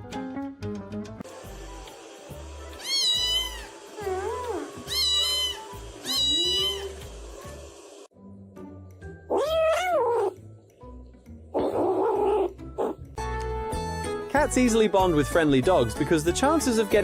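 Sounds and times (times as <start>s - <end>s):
background music: 0.0s - 3.4s, 7.0s - 17.0s
deeper cat call: 2.8s - 7.0s, 9.3s - 10.4s
kitten meowing: 2.8s - 7.0s, 9.3s - 10.4s, 11.6s - 12.5s.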